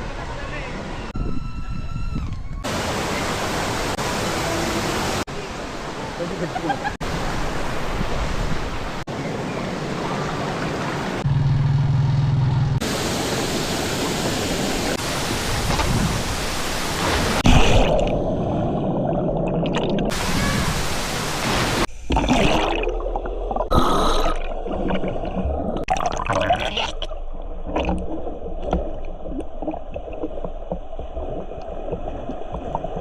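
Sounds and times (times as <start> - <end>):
waterfall water rushing: 2.7 - 11.2, 12.8 - 17.4, 20.1 - 21.9.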